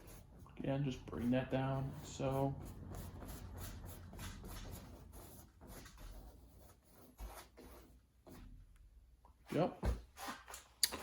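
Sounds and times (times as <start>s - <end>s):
brush swishing on canvas: 0.0s - 8.5s.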